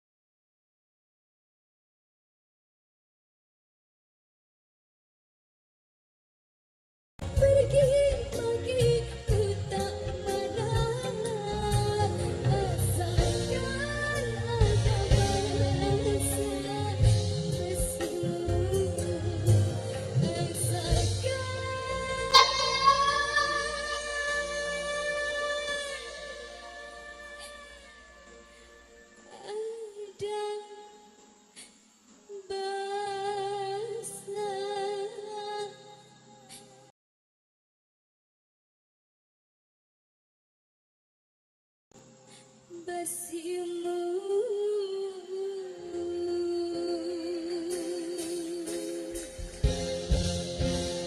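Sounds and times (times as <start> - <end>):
woman singing: 7.2 - 28.5, 29.2 - 31.2, 32.3 - 36.7, 42.7 - 49.6
band accompaniment: 22.2 - 25.0, 48.2 - 51.0.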